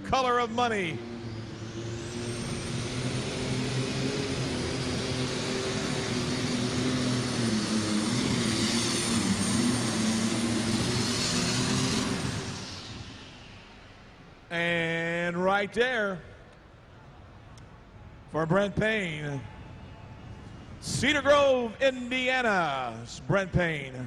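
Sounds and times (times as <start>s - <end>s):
pulling tractor engine at full power: 0.0s - 14.5s.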